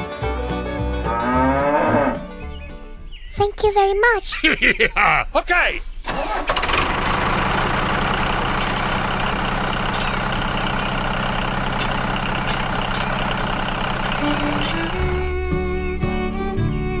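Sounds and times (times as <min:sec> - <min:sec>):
tractor engine running: 0:06.1 - 0:16.5.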